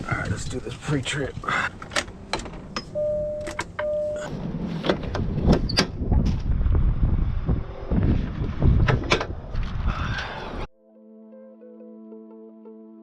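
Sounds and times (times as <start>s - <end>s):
short beeps: 2.9s - 4.3s
heavy rumble: 4.3s - 10.7s
wind buffeting microphone: 5.0s - 10.7s.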